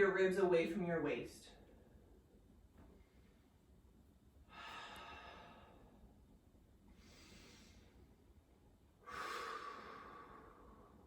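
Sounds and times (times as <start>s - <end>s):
person breathing: 4.5s - 6.1s, 7.0s - 8.2s, 9.0s - 11.0s.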